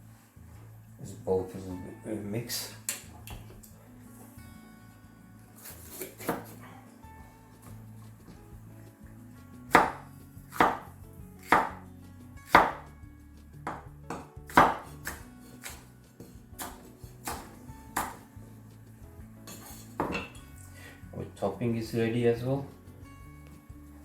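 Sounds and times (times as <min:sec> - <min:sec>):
knife chopping on board: 0:05.6 - 0:06.6, 0:09.7 - 0:11.8, 0:12.5 - 0:12.9, 0:13.7 - 0:18.3.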